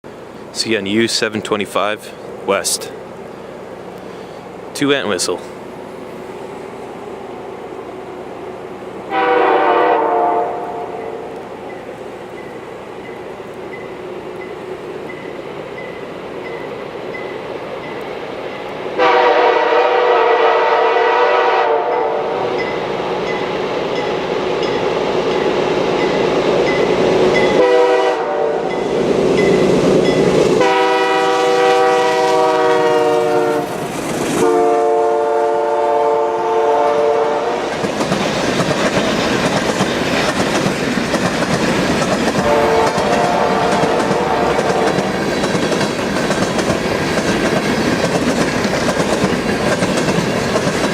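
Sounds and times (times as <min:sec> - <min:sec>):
locomotive air horn blasts: 0:09.1 - 0:11.2, 0:19.0 - 0:22.5, 0:27.5 - 0:28.8, 0:30.6 - 0:33.7, 0:34.4 - 0:37.6, 0:42.4 - 0:44.9
wheels clicking over rail joints: 0:37.7 - 0:50.9.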